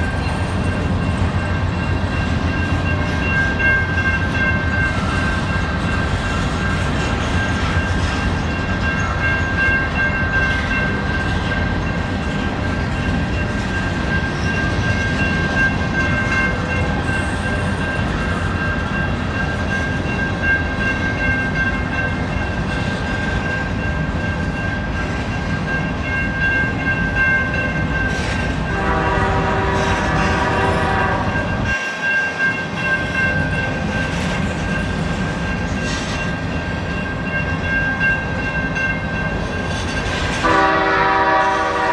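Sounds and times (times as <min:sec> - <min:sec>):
freight train rumbling past: 0:00.0 - 0:41.9
train horn: 0:28.7 - 0:31.6, 0:40.4 - 0:41.9.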